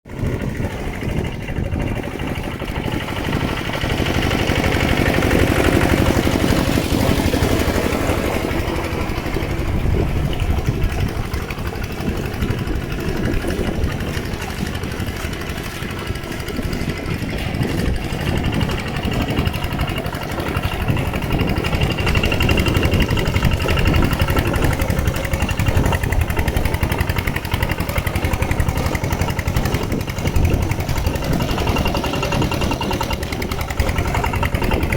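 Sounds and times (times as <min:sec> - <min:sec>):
tractor engine running: 0:00.0 - 0:34.9.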